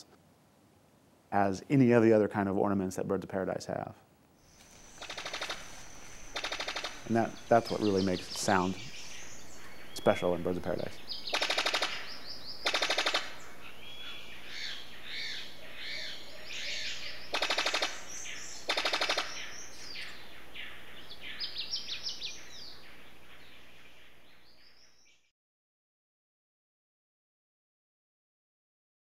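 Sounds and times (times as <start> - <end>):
forest birds chirping and whistling: 4.4 - 25.3
bird rattles: 4.6 - 7.5, 11.3 - 13.4, 17.3 - 18.1, 18.7 - 19.4.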